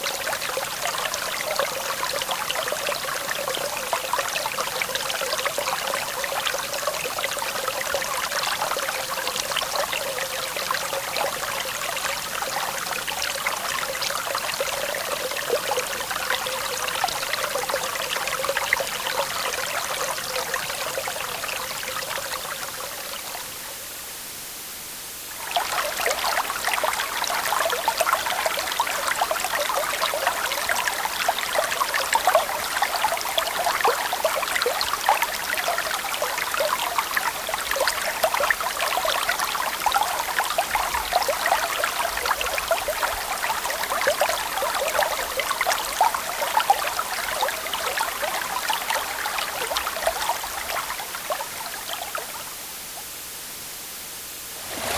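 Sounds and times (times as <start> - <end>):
river water running: 54.4 - 54.9.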